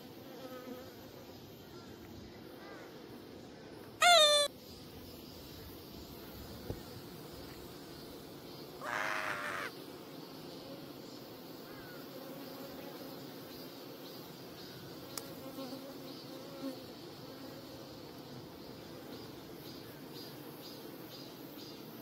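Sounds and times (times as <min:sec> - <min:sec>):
higher-pitched sound: 0:04.0 - 0:04.5
honeybees buzzing: 0:05.8 - 0:14.4.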